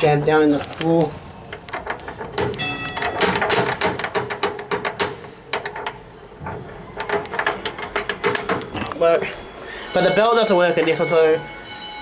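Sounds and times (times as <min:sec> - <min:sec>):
foot bell mechanism clicking: 0:01.7 - 0:09.5.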